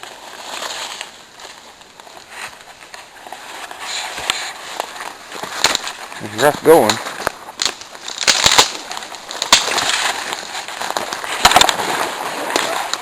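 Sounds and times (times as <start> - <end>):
footsteps through brush: 0.0 - 13.0
leaves crackling underfoot: 0.0 - 13.0
twigs snapping: 0.4 - 13.0.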